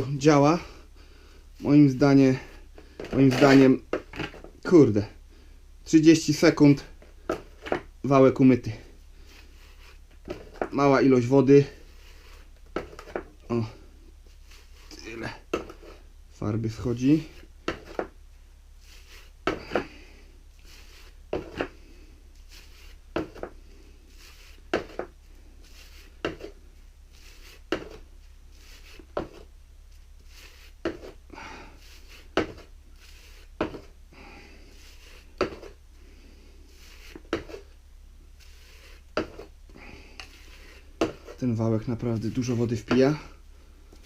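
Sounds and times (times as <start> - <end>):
scraper scraping a paint roller: 1.9 - 4.5, 9.2 - 13.3, 14.2 - 16.1, 18.8 - 20.0, 20.6 - 37.8, 38.4 - 43.4.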